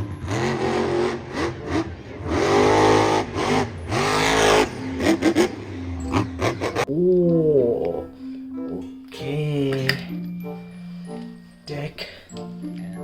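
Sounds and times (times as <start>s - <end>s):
car engine revving: 0.0s - 6.9s.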